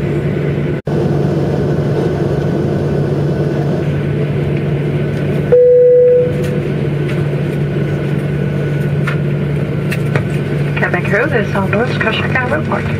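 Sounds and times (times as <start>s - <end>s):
jet engines idling: 0.0s - 12.9s.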